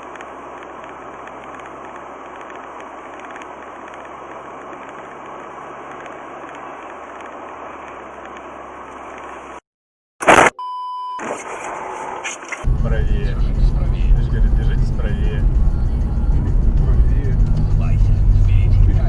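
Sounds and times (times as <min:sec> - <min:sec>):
car road noise: 0:00.0 - 0:09.6, 0:11.2 - 0:19.0
faint low engine hum: 0:12.6 - 0:19.0.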